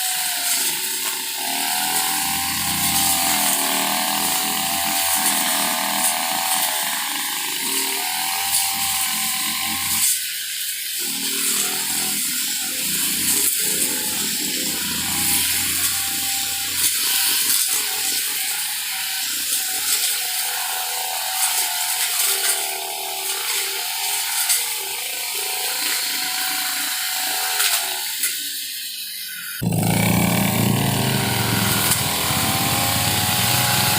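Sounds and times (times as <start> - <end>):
machine hissing and whining: 28.2 - 33.9.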